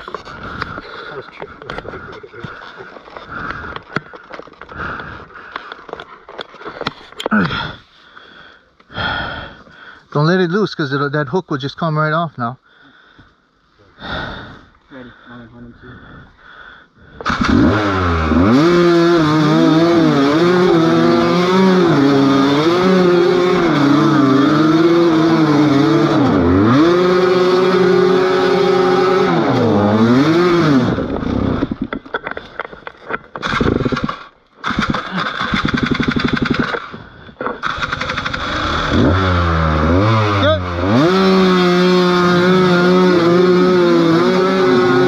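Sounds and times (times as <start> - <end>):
motorcycle engine revving: 17.2 - 32.0, 33.4 - 37.0, 37.6 - 45.0.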